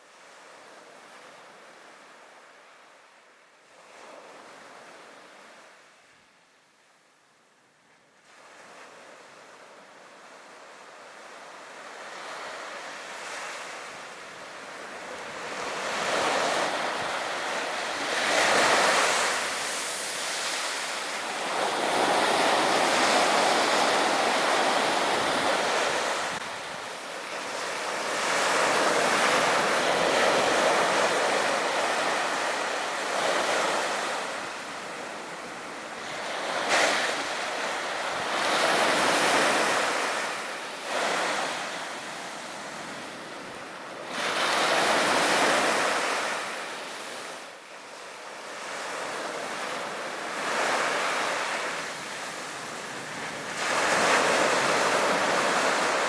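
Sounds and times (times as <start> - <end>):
sea waves breaking on beach: 11.6 - 56.0
wind on microphone: 15.3 - 33.6.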